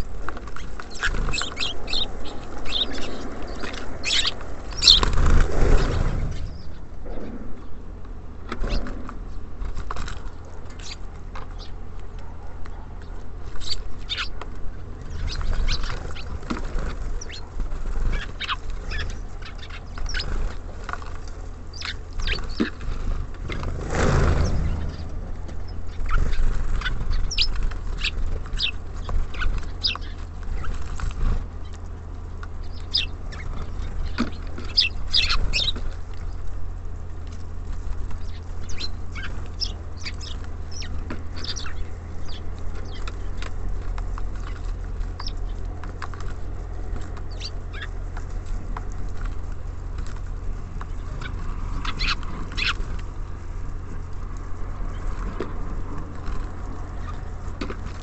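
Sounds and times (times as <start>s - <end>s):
low rumble: 0.0s - 9.6s, 22.1s - 28.5s
songbirds chirping: 0.0s - 58.0s.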